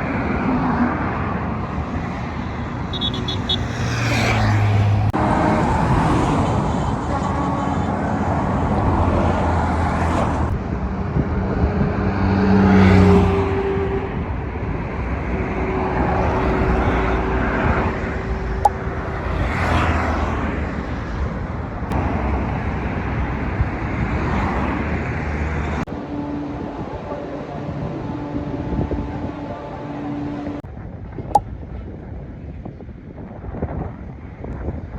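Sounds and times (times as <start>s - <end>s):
vehicles passing: 0.0s - 33.2s
car horn held: 2.9s - 3.9s.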